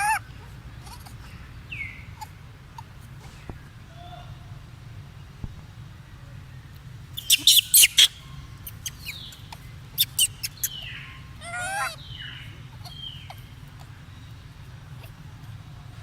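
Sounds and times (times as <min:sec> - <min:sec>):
monkey squeaks and chirps: 0:07.2 - 0:13.9.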